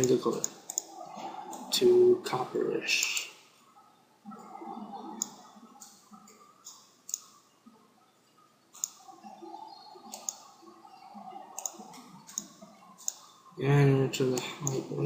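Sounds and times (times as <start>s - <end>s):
computer mouse clicking: 0.0s - 1.7s, 3.0s - 3.3s, 5.1s - 7.4s, 8.7s - 9.2s, 10.0s - 10.5s, 11.6s - 13.3s, 14.3s - 15.0s.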